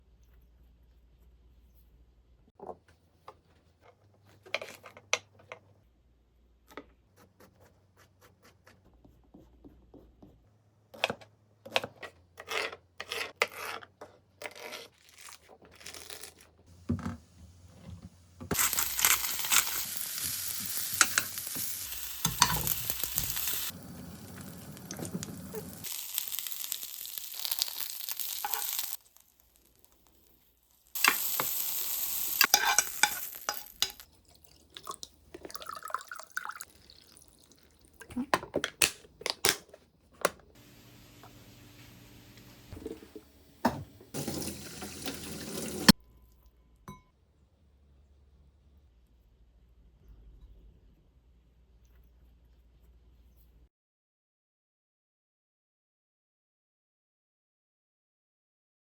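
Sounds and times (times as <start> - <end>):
vegetables sizzling in a pan: 18.5 - 34.0.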